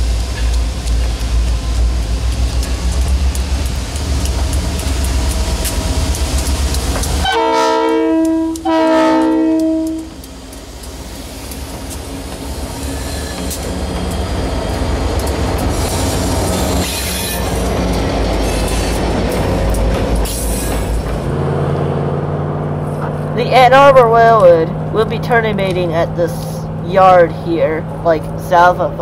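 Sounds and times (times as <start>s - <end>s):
diesel locomotive engines running: 0.0s - 29.0s
multi-note air horn blasts: 7.2s - 10.1s.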